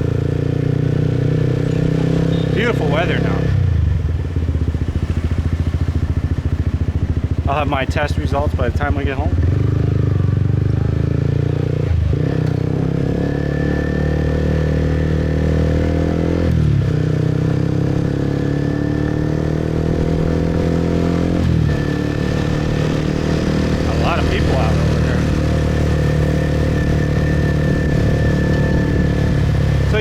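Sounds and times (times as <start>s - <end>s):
motorbike engine running: 0.0s - 30.0s.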